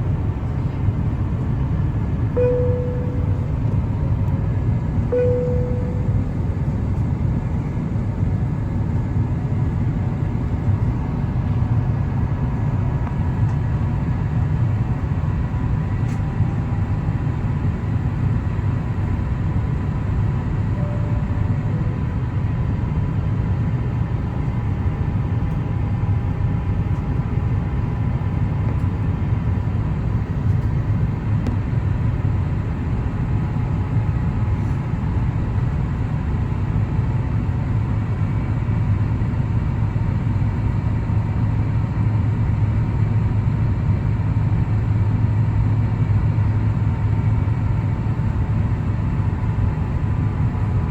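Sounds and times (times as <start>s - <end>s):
airplane cabin rumble: 0.0s - 37.0s
faint steady whine: 2.4s - 7.5s, 20.7s - 22.9s.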